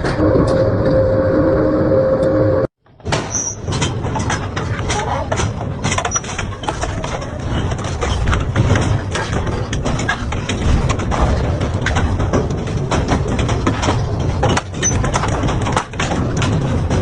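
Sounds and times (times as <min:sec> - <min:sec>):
metal cracking and snapping: 0:03.0 - 0:17.0
industrial shredder rumbling: 0:03.7 - 0:17.0.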